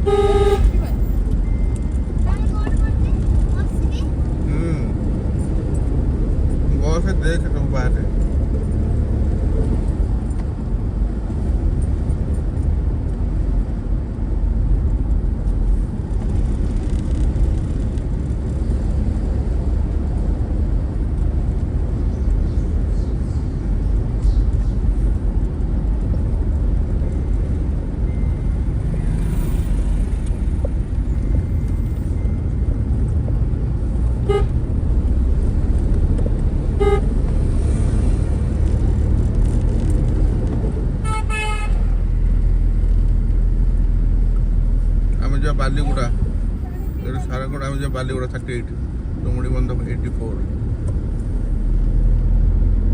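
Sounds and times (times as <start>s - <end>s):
horn toots: 0.0s - 1.0s, 34.2s - 34.6s, 36.8s - 37.1s, 41.0s - 42.0s
vehicle driving on road: 0.0s - 52.9s.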